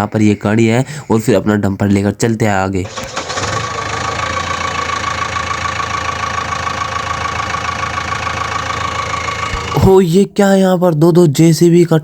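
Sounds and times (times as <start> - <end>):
toy truck electric motor whining: 2.9 - 9.9.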